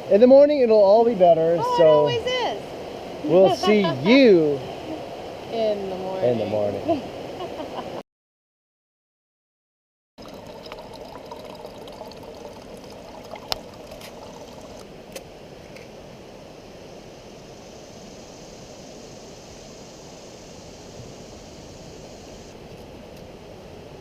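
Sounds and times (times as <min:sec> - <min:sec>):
river water rushing: 0:01.1 - 0:07.4, 0:10.2 - 0:15.1.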